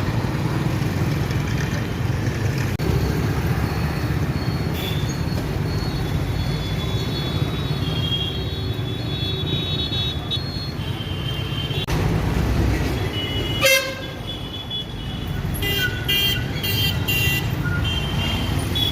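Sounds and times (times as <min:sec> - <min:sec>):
traffic engine rumble: 0:00.0 - 0:18.9
vehicle horns honking: 0:04.7 - 0:05.2, 0:13.0 - 0:18.9.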